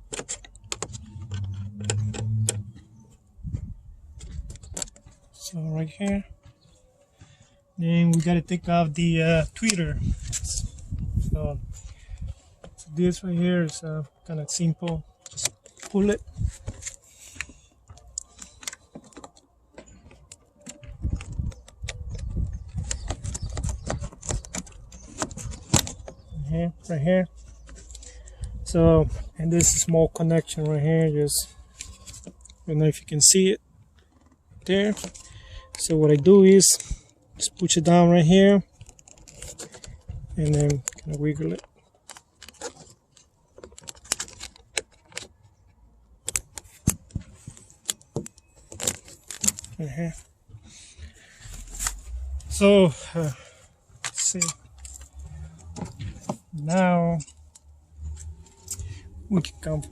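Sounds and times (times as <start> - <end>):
plastic trim clicking and rattling: 0.0 - 2.8, 4.1 - 5.2, 14.6 - 26.4, 31.7 - 38.0, 38.7 - 50.2.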